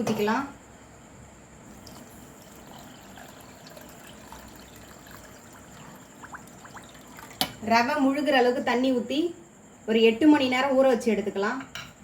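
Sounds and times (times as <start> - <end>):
water trickling into a bowl: 1.7 - 7.6.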